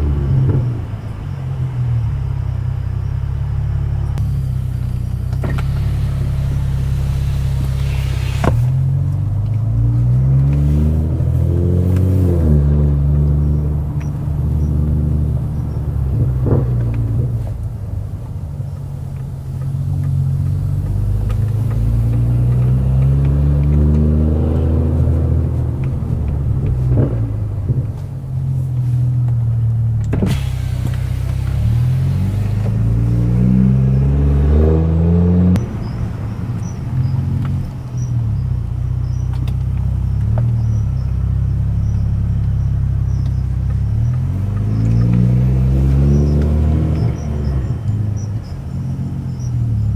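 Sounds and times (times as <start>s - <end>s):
car engine accelerating: 0.0s - 49.9s
exhaust crack: 0.0s - 49.9s.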